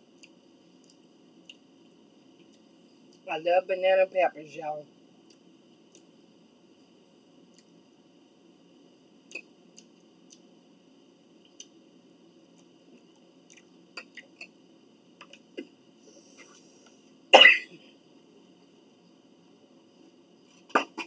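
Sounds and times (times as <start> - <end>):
person chewing food: 0.1 - 1.7, 5.2 - 6.1, 7.5 - 7.8, 9.3 - 10.5, 11.4 - 11.8, 12.5 - 14.6.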